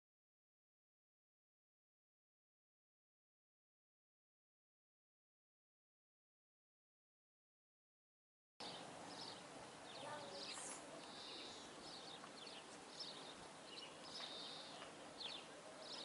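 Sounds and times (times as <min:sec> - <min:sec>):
birds chirping: 0:08.6 - 0:16.0
buzzy bird calls: 0:08.6 - 0:16.0.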